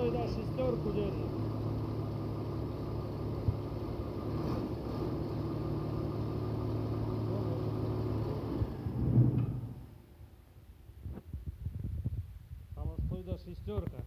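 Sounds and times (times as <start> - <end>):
diesel engine running: 0.0 - 10.2.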